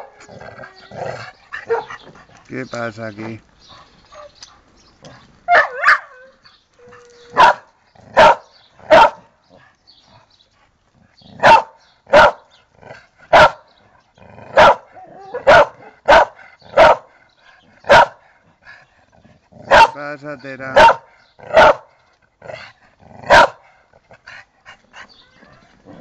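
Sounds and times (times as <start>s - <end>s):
dog barking: 0.0s - 0.2s, 1.6s - 2.0s, 5.5s - 6.3s, 7.3s - 9.3s, 11.4s - 12.5s, 13.3s - 13.7s, 14.5s - 17.1s, 17.9s - 18.2s, 19.7s - 20.0s, 20.8s - 21.9s, 23.3s - 23.6s.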